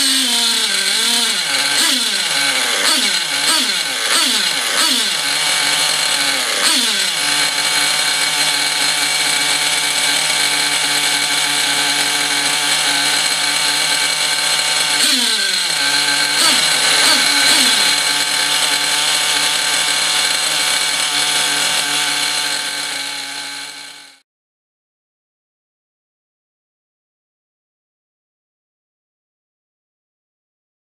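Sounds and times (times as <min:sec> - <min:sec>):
model engine high buzz: 0:00.0 - 0:24.2.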